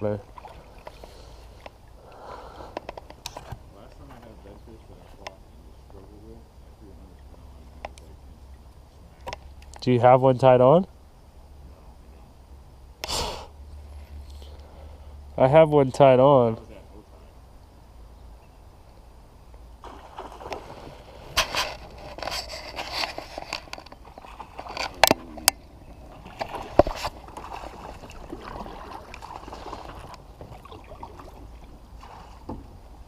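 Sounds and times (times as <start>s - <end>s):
water sloshing: 0.0s - 5.0s, 19.8s - 33.0s
scrapes and knocks on plastic kayak: 20.2s - 25.3s, 26.2s - 28.6s.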